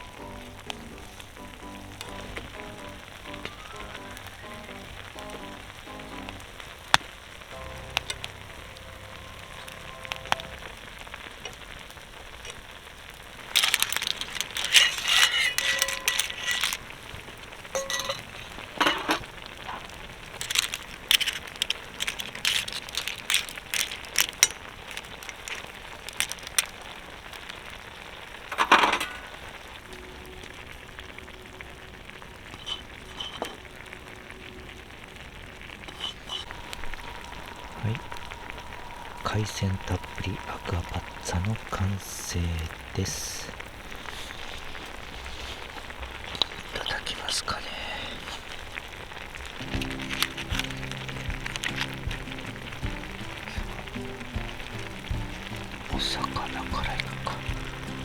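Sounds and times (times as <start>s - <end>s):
faint background music: 0.0s - 11.2s, 49.6s - 58.0s
campfire crackling and popping: 0.0s - 58.0s
food sizzling in a pan: 0.0s - 58.0s.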